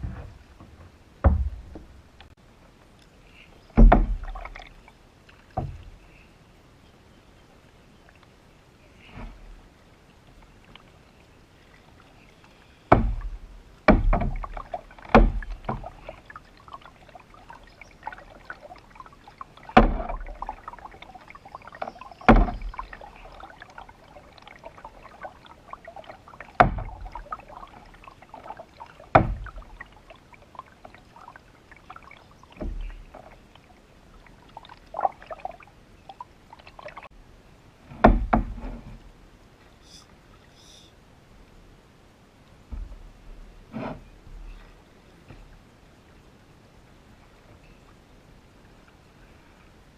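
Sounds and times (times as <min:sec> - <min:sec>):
paddle knocking on canoe hull: 0:00.0 - 0:02.0, 0:03.8 - 0:04.7, 0:12.9 - 0:30.0, 0:38.0 - 0:38.6.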